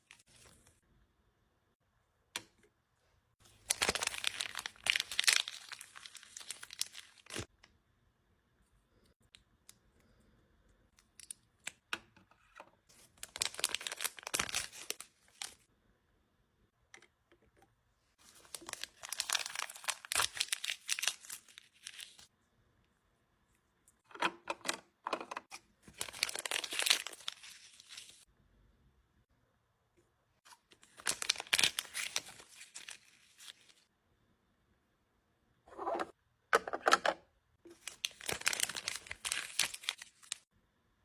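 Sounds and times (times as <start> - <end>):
plastic packaging crinkling and tearing: 3.5 - 7.5, 13.0 - 15.6, 18.2 - 22.2, 25.8 - 28.2, 30.8 - 33.8, 37.7 - 40.5.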